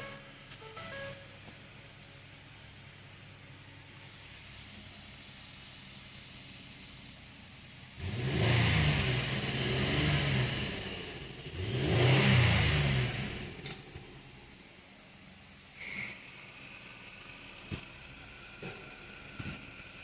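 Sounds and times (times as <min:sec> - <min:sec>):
car engine idling: 0:00.0 - 0:08.3, 0:12.8 - 0:20.0
car engine revving: 0:07.9 - 0:14.3.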